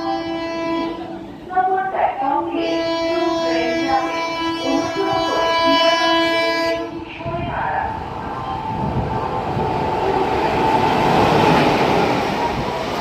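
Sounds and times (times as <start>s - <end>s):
passenger train passing: 0.0s - 13.0s.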